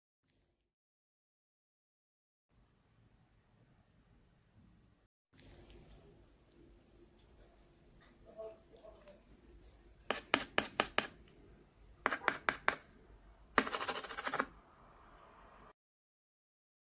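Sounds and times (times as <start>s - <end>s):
carving tool scraping: 10.1s - 11.2s, 12.0s - 12.9s, 13.6s - 14.5s.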